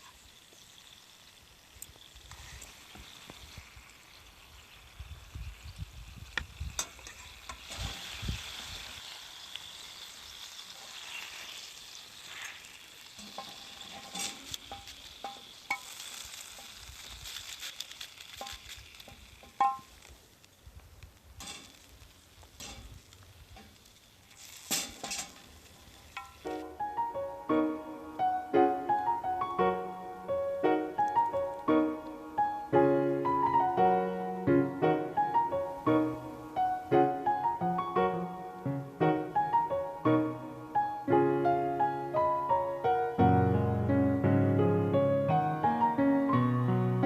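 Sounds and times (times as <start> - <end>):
chicken sizzling in a pan: 0.0 - 29.4
utensil scraping a pan: 12.2 - 17.6, 21.4 - 22.0, 22.6 - 23.0, 23.6 - 26.6.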